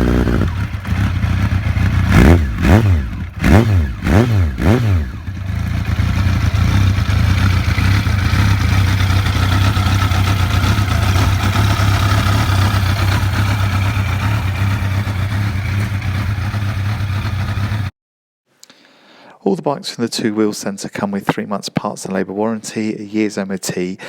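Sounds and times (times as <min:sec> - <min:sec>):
motorcycle engine idling: 0:00.0 - 0:17.9.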